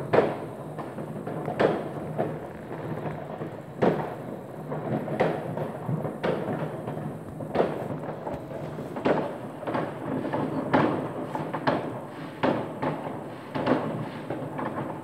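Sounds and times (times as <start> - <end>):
distant fireworks rumbling and crackling: 0.0 - 15.0
sharp echoing firework bangs: 0.0 - 15.0.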